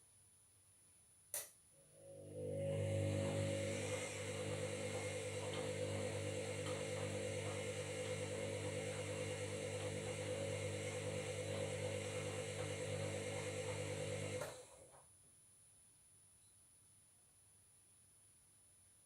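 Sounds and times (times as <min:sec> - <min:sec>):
washing machine running: 0:02.0 - 0:14.9.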